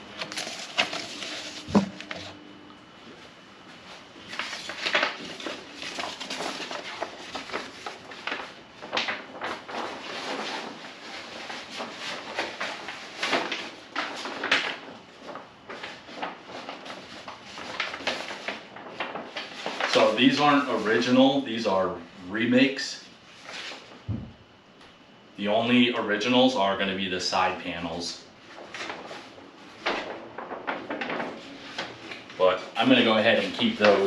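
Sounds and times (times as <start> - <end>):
paper and plastic sheets rustling: 0.0 - 2.4, 3.6 - 21.8, 23.3 - 24.0, 28.4 - 34.0.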